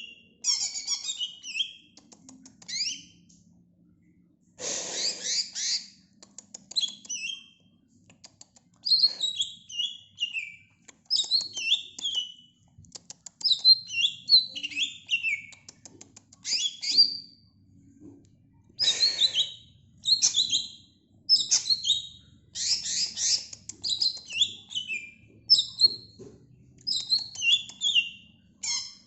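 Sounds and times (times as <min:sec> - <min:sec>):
bird chirping and whistling: 0:00.0 - 0:01.9, 0:02.7 - 0:03.2, 0:05.0 - 0:05.9, 0:06.8 - 0:07.6, 0:08.8 - 0:12.5, 0:13.5 - 0:15.5, 0:16.4 - 0:17.2, 0:18.8 - 0:26.1, 0:26.9 - 0:29.0.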